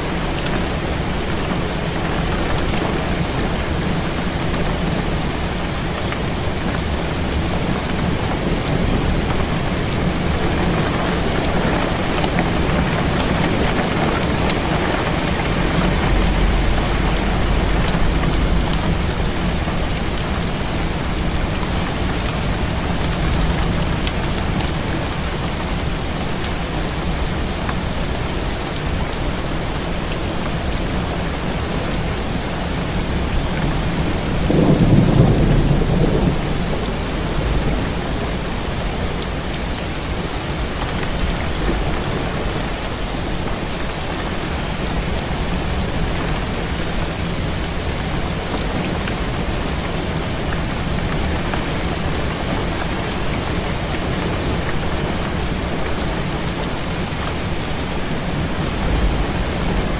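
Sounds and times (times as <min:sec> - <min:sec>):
heavy rain against window: 0:00.0 - 0:59.9
distant thunder rumble: 0:10.8 - 0:24.4.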